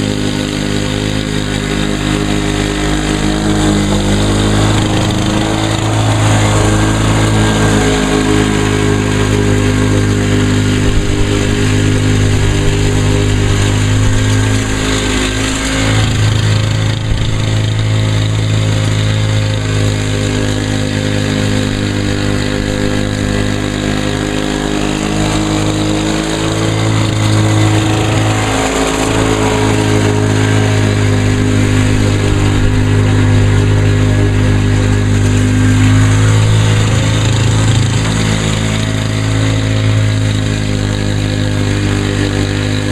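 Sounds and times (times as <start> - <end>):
lawn mower engine cutting grass: 0.0 - 42.9.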